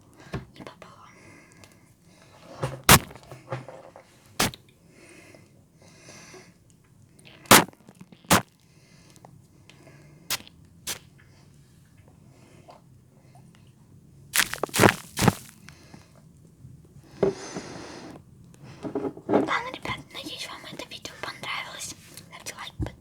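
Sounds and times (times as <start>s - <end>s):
faint scratchy rustling: 14.4s - 15.6s.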